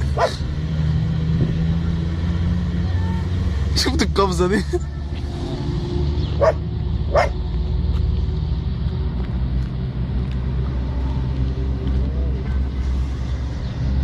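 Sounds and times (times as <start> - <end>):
dog barking: 0.2 - 0.4, 6.4 - 7.4.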